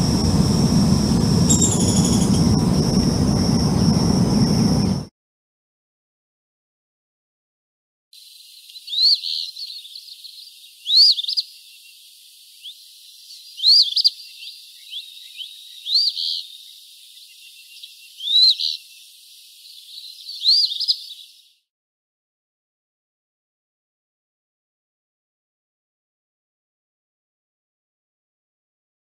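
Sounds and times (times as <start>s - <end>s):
bird singing raspy songs: 1.5s - 2.6s, 8.2s - 21.6s
soft bird notes: 1.5s - 2.7s.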